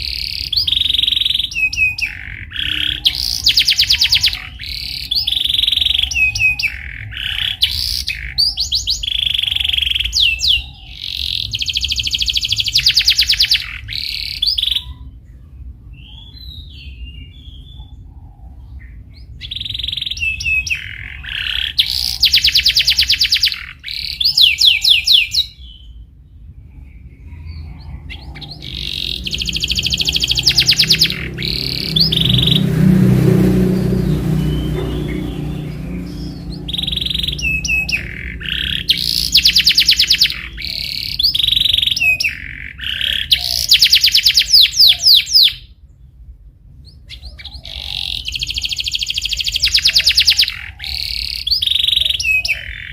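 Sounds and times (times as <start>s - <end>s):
canary singing chirps and trills: 0.0s - 52.9s
rough noisy rumble: 25.6s - 43.4s.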